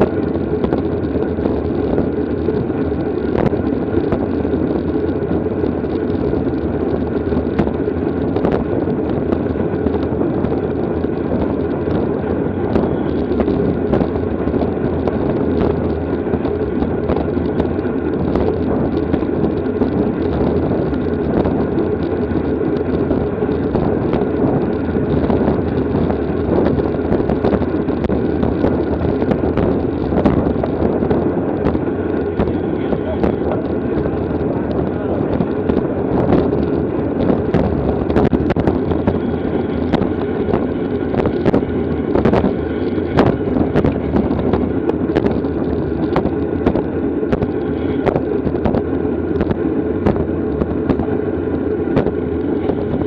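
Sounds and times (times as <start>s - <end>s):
small clicks and ticks: 0.0s - 53.0s
wind rush on microphone: 0.0s - 53.0s.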